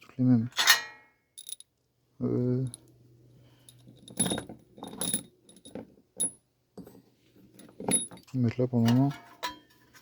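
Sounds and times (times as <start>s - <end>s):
metal screws clinking: 1.4s - 1.6s, 3.7s - 6.9s, 7.5s - 8.4s.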